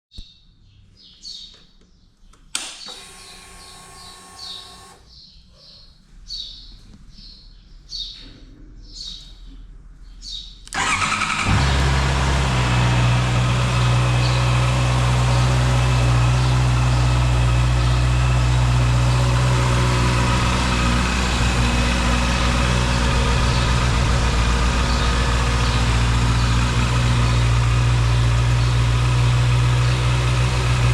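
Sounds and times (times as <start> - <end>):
motorcycle electric starter cranking: 2.6 - 5.1, 10.7 - 14.2
motorcycle engine idling: 10.8 - 30.9.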